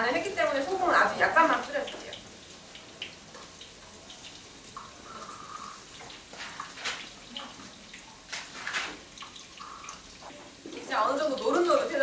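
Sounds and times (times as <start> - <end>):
potatoes sizzling in a pan: 0.0 - 12.0.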